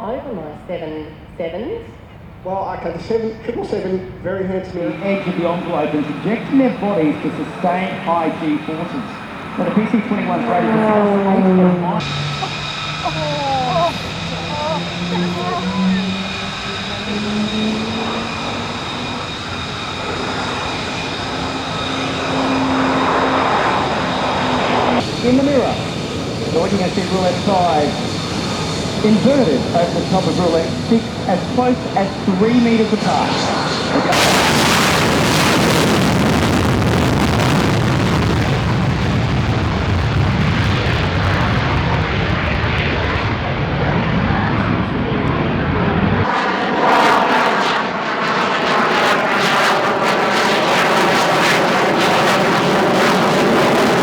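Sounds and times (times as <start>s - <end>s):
turboprop aircraft flying past: 0.4s - 54.0s.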